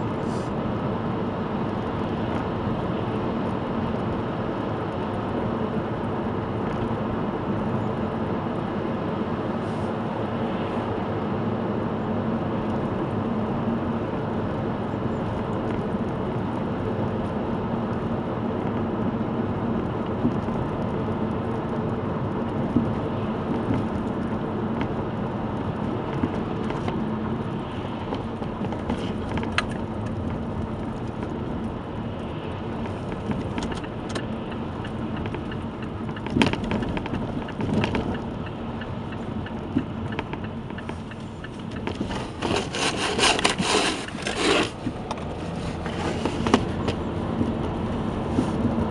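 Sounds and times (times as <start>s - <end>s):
car road and running drone: 0.0s - 48.9s.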